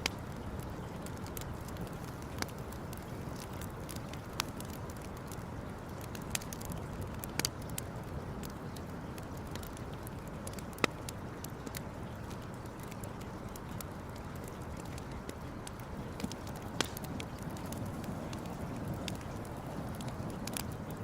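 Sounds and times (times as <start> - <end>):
campfire crackling: 0.0 - 21.0
sharp pops of fire: 15.6 - 21.0.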